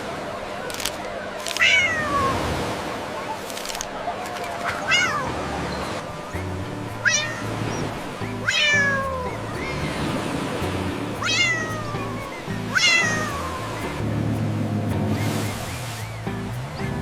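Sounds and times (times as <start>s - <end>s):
cat meowing: 1.6s - 2.4s, 4.7s - 5.3s, 6.9s - 9.7s, 11.2s - 13.8s
background music with bass line: 5.3s - 17.0s.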